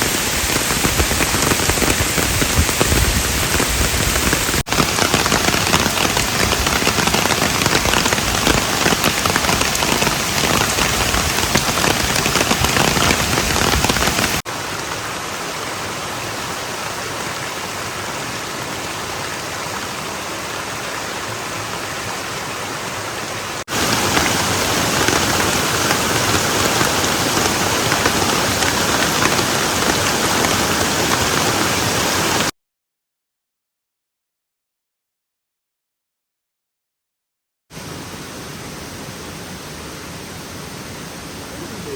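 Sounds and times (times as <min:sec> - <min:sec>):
heavy rain pattering: 0:00.0 - 0:32.5.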